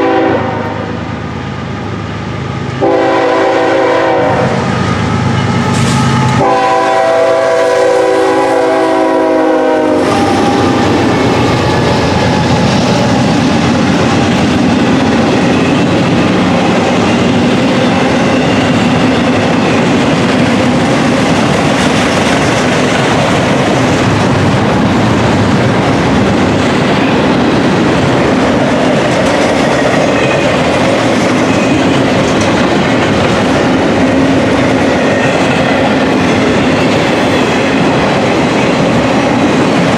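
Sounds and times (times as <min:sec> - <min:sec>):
locomotive horn blowing: 0:00.0 - 0:00.9, 0:02.8 - 0:04.8, 0:06.0 - 0:11.0
train rumbling and clattering past: 0:00.0 - 0:39.9.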